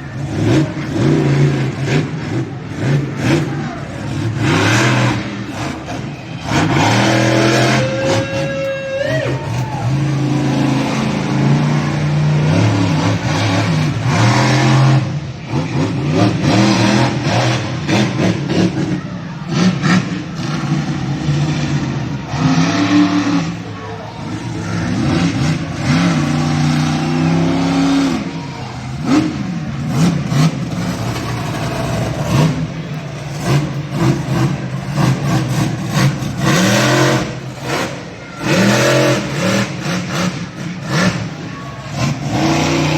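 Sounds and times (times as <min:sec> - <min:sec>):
monster truck engine revving: 0:00.0 - 0:42.9.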